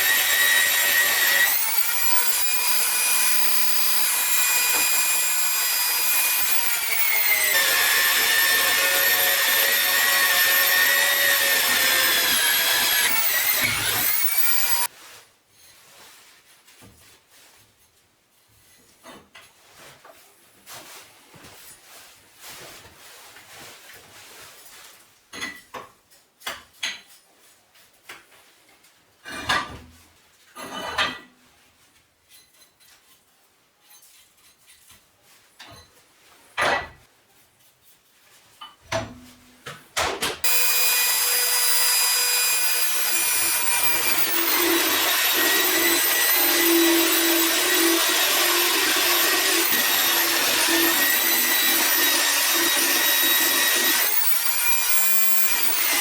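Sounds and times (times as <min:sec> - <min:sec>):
angle grinder on metal: 0:00.0 - 0:14.9, 0:40.4 - 0:56.0.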